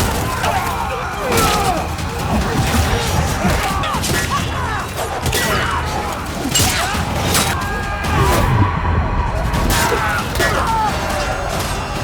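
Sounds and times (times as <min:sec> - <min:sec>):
crashes and heavy blows: 0:00.0 - 0:12.0
shouts and cries: 0:00.0 - 0:12.0
low rumble: 0:07.7 - 0:10.8.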